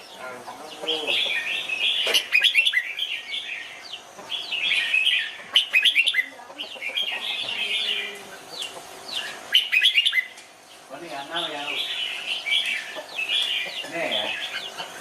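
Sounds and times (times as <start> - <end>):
bulbul singing whistled phrases: 0.0 - 10.4.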